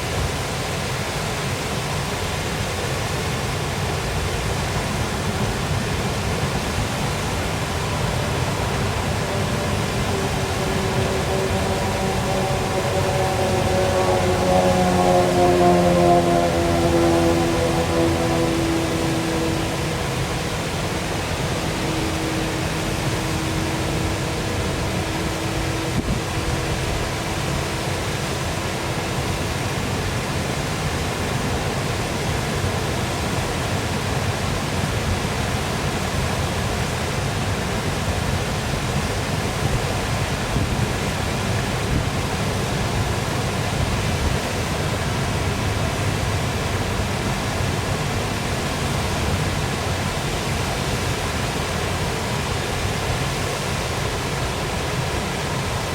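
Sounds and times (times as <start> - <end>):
waterfall rushing: 3.5 - 32.2
faint steady hum: 4.1 - 30.2.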